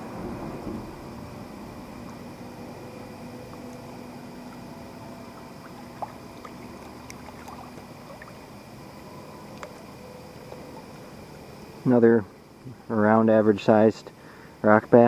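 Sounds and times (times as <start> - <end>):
river water rushing: 0.0 - 8.5.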